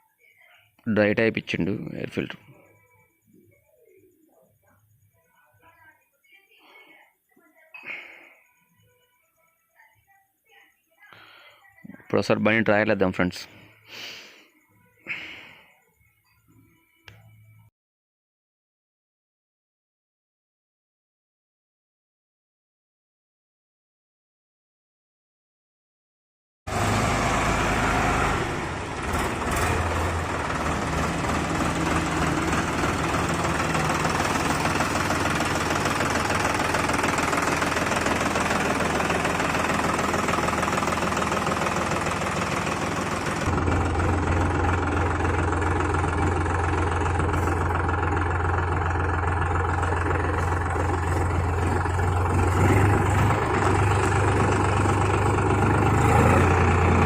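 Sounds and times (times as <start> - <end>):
diesel tractor engine running: 26.7 - 57.0.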